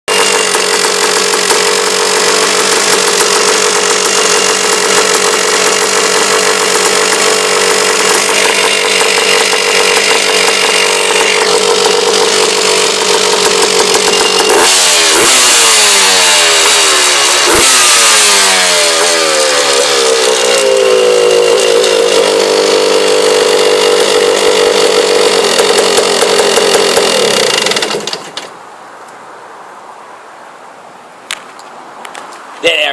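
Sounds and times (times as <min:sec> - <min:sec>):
two-stroke engine running and revving: 0:00.1 - 0:28.3.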